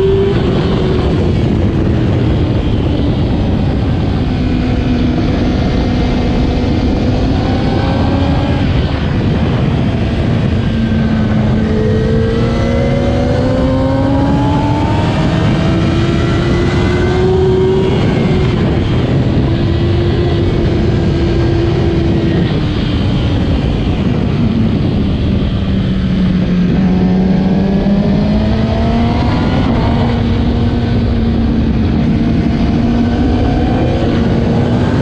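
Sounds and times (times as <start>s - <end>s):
motorcycle engine accelerating: 0.0s - 35.0s
steady rushing noise: 0.0s - 35.0s.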